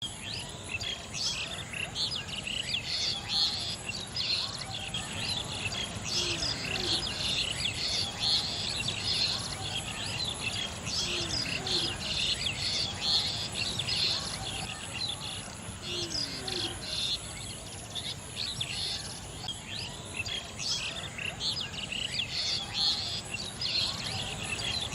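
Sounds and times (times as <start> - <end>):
birds chirping in chorus: 0.0 - 24.9
lower falling bird calls: 2.8 - 19.5.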